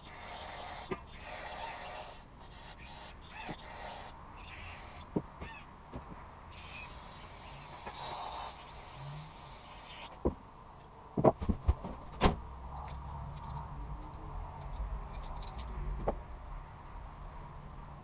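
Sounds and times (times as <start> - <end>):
hiss: 6.6 - 10.2.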